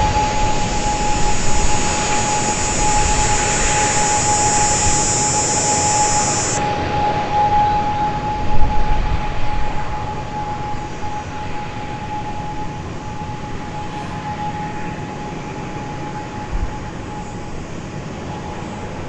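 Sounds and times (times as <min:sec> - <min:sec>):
turboprop engines whining: 0:00.0 - 0:06.8.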